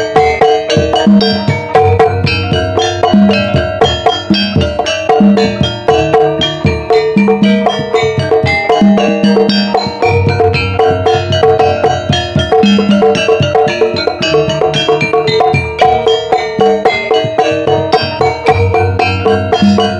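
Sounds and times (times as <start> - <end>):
struck tuned percussion: 0.0 - 19.9.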